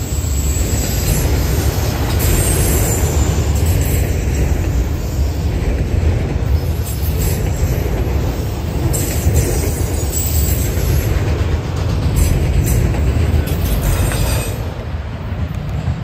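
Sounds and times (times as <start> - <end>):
freight train rolling past: 0.0 - 16.0.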